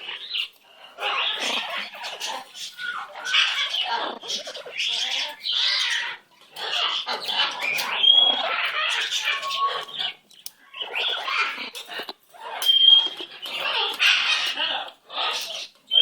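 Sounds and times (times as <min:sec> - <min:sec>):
bird chattering and squawking: 0:00.0 - 0:16.0.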